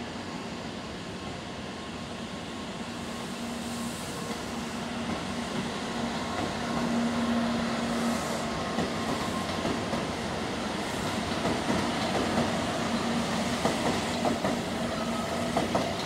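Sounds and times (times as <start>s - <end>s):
train accelerating: 0.1s - 16.0s.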